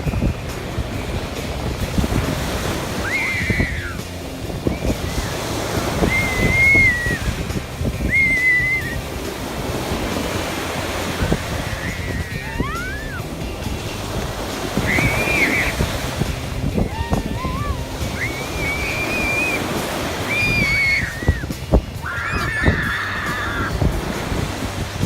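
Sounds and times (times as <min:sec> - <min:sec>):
sea waves washing in: 0:00.0 - 0:25.0
wind buffeting microphone: 0:00.0 - 0:25.0
high whistled calls: 0:02.9 - 0:09.2, 0:11.2 - 0:13.4, 0:14.7 - 0:23.8.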